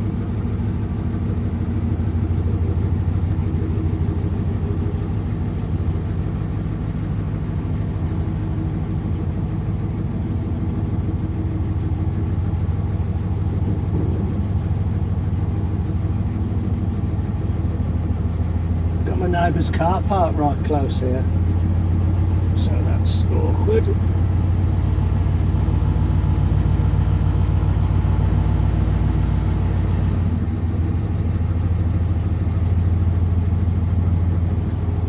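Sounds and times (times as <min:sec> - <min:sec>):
car engine running: 0:00.0 - 0:35.0
person talking: 0:19.0 - 0:21.4, 0:22.5 - 0:24.1.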